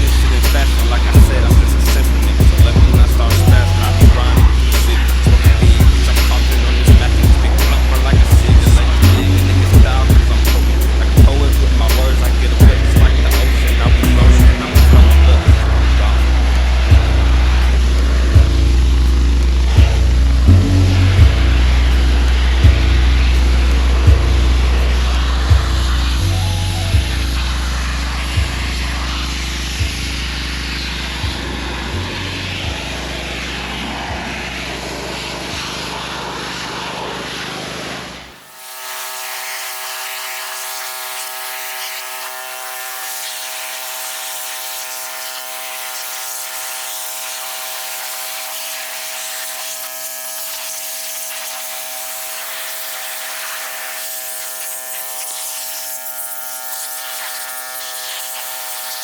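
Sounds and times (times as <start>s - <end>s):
low heavy rumble with knocks: 0.0s - 27.4s
small electric motor buzzing: 0.0s - 59.0s.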